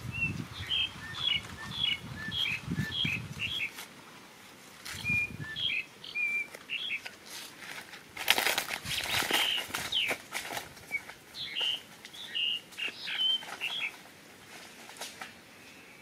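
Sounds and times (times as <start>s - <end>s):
bird chirping: 0.0s - 3.8s, 4.9s - 7.2s, 8.9s - 10.2s, 10.8s - 14.0s
soft handling rustle: 2.4s - 5.2s, 6.3s - 15.9s.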